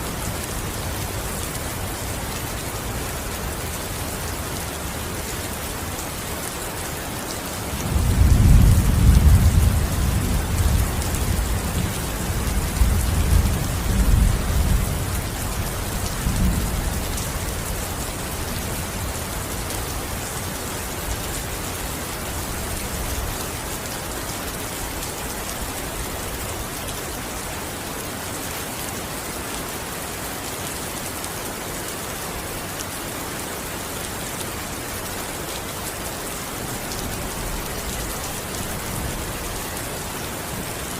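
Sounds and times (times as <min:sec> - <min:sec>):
heavy rain: 0:00.0 - 0:40.9
rolling thunder rumble: 0:07.9 - 0:15.2.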